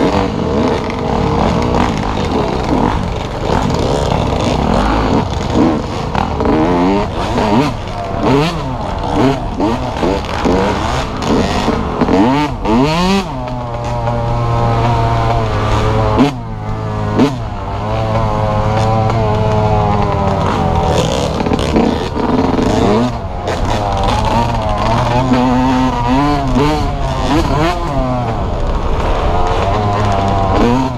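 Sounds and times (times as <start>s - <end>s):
dirt bike engine revving: 0.0s - 30.9s.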